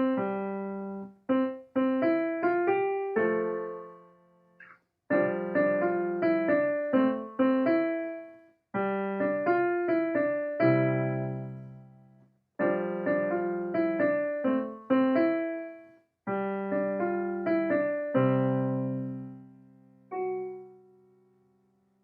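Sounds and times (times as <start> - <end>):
piano-type keyboard melody: 0.0 - 4.4, 5.1 - 21.4.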